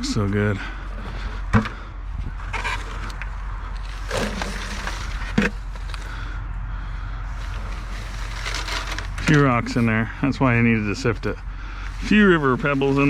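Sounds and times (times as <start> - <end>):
sand scraping through sifter screen: 3.8 - 6.0, 7.4 - 10.1, 11.9 - 13.0.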